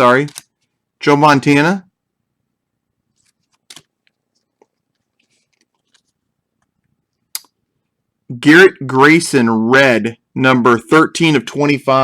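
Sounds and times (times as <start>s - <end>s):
trading cards rustling: 0.1s - 0.8s, 3.1s - 6.2s.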